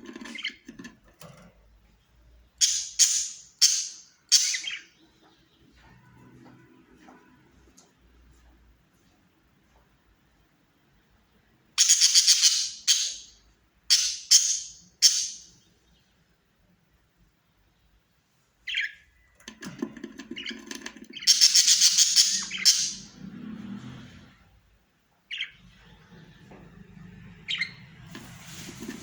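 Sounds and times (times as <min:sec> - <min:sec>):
budgerigars chattering: 0:11.8 - 0:13.3, 0:20.3 - 0:23.1.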